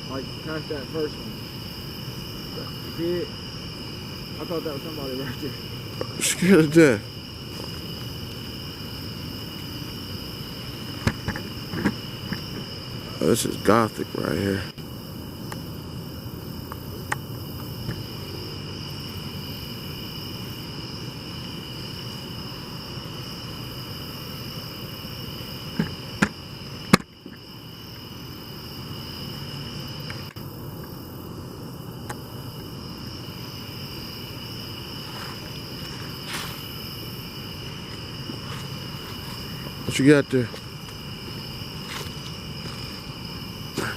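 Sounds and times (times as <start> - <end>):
crickets trilling: 0.0 - 43.9.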